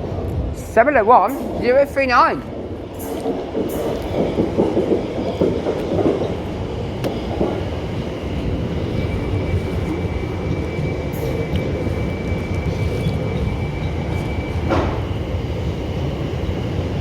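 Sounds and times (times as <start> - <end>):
train running past: 0.0 - 17.0.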